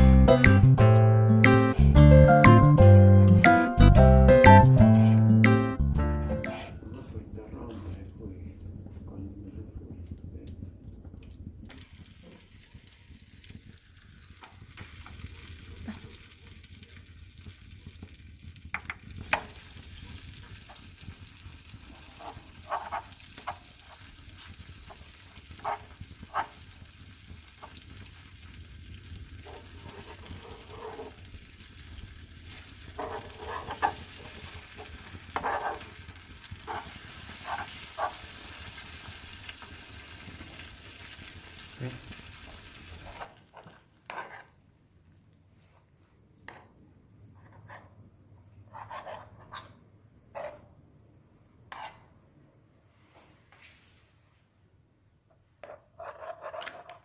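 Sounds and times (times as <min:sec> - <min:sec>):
wood fire crackling: 0:00.0 - 0:45.5
cheese sizzling: 0:11.0 - 0:44.6.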